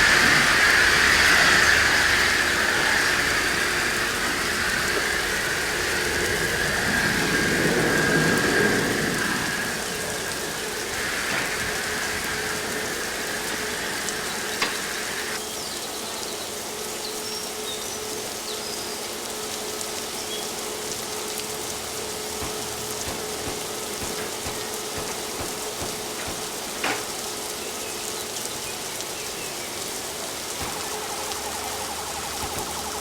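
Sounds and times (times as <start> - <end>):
machine hum: 0.0 - 15.4, 21.6 - 27.6, 30.5 - 33.0
water spraying hiss: 0.0 - 33.0.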